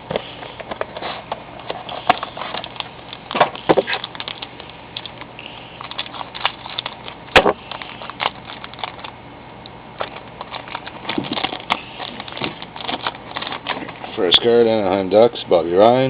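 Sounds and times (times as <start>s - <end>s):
card pack crinkling: 0.9s - 9.2s, 10.0s - 14.3s.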